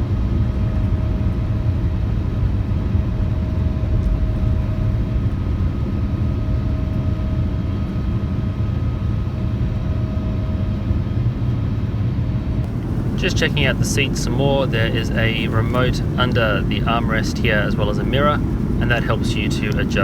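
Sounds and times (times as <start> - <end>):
jet engine rumble in cabin: 0.0 - 20.0
faint steady hum: 12.6 - 20.0.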